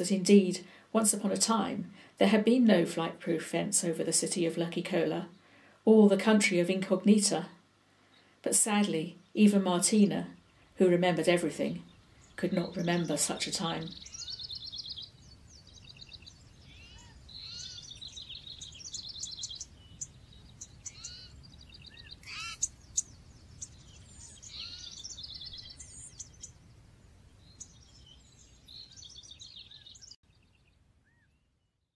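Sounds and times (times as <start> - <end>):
birds chirping and trilling: 8.1 - 31.5.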